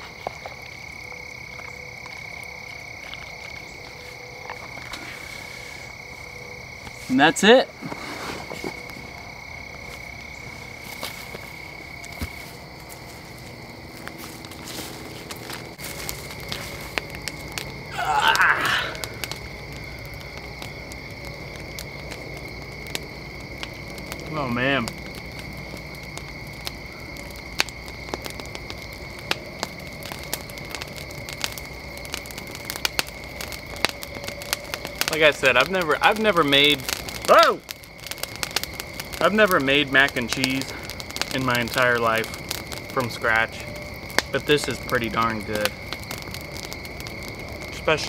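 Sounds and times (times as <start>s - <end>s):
high insect chorus: 0.0s - 48.0s
wood fire crackling and popping: 0.0s - 48.0s.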